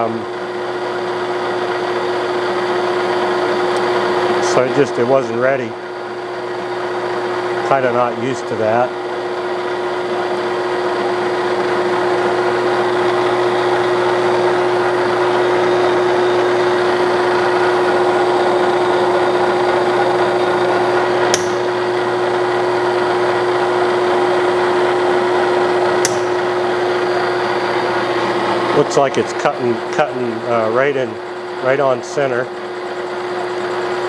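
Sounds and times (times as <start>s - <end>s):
lathe humming: 0.0s - 34.0s
sharp clicks: 21.3s - 21.9s, 26.0s - 26.6s.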